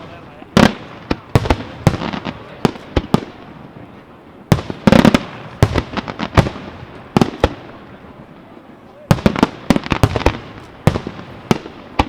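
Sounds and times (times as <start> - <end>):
fireworks bangs with echoes: 0.0 - 12.0.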